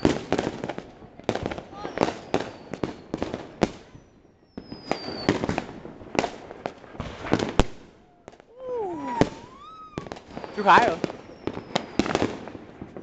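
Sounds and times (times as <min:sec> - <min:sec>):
firework rocket whistle: 0:00.0 - 0:00.4, 0:01.8 - 0:03.2, 0:03.9 - 0:05.7, 0:07.1 - 0:12.5
fireworks and firecrackers banging: 0:00.0 - 0:13.0.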